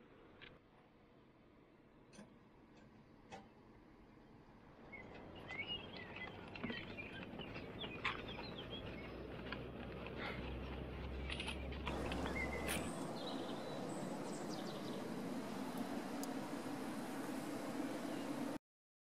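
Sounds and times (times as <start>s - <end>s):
small birds chirping: 4.2s - 18.6s.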